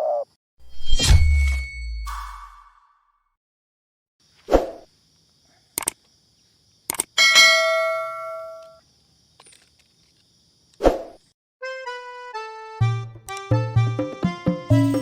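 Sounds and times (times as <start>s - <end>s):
bell-like ding: 1.0s - 2.9s
sharp clicks: 5.8s - 6.0s, 6.9s - 7.1s.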